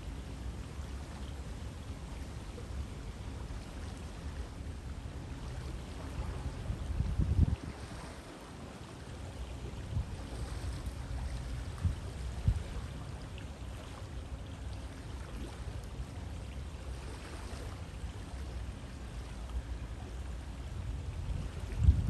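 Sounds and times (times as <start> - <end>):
river water flowing: 0.0 - 22.0.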